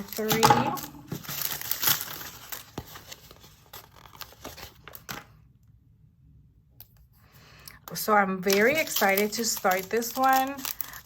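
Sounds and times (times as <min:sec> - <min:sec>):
plastic bag crinkling: 0:00.0 - 0:05.3, 0:07.9 - 0:11.0.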